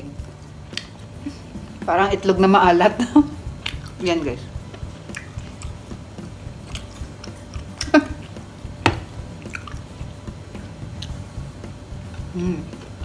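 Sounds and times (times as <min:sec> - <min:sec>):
chewing soft food: 0:03.5 - 0:04.0, 0:04.7 - 0:08.4, 0:09.2 - 0:10.2.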